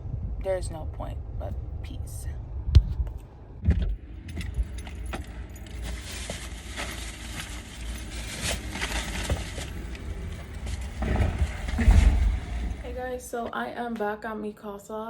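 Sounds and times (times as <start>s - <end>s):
low background rumble: 0.0s - 13.9s
objects jingling and rustling: 4.0s - 13.0s.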